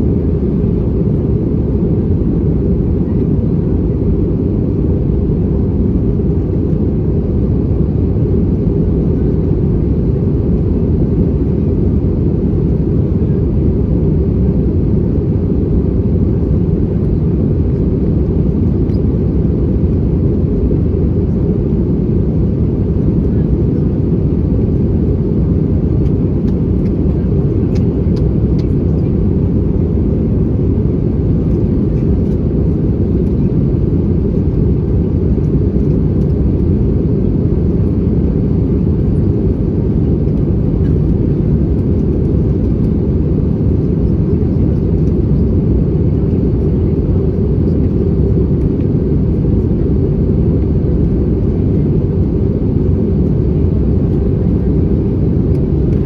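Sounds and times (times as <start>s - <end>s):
airplane cabin engine roar: 0.0s - 56.0s.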